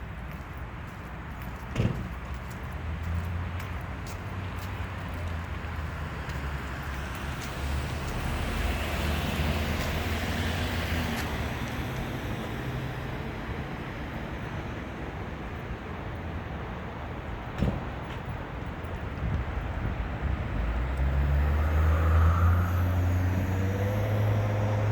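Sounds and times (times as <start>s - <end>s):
road traffic rumble: 0.0s - 24.9s
vehicle passing: 2.8s - 13.9s, 19.6s - 24.9s.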